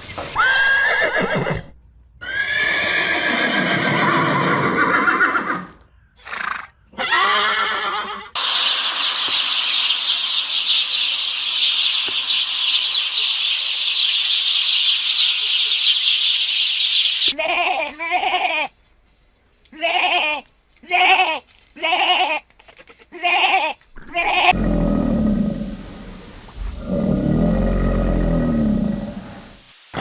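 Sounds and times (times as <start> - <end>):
horses neighing: 0.4 - 8.4
steady high hiss: 8.4 - 18.0.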